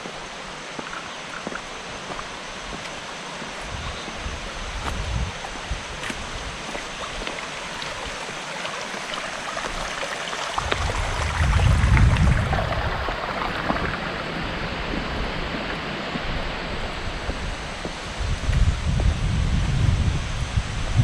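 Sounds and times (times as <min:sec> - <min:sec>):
stream water running: 0:00.0 - 0:20.4
wind rumble on microphone: 0:03.6 - 0:08.2, 0:10.6 - 0:21.0.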